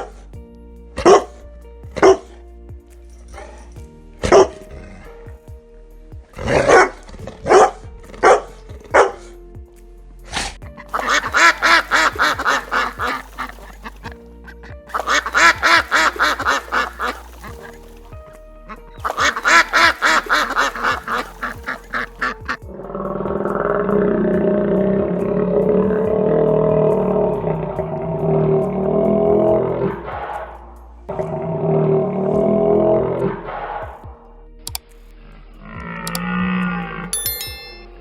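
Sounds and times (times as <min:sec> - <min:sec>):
background music: 0:00.0 - 0:38.0
animal calling: 0:10.3 - 0:34.0.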